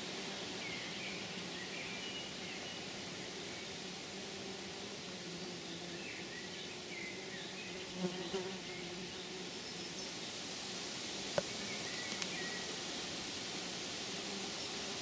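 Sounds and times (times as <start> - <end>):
outdoor background hiss: 0.0 - 15.0
flying insect buzzing: 7.9 - 9.1.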